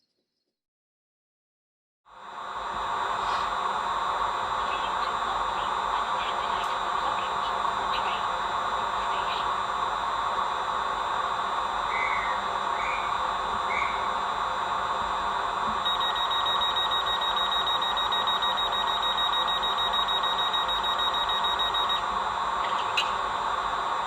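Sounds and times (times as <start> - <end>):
high pulsing electronic tone: 15.4 - 23.8.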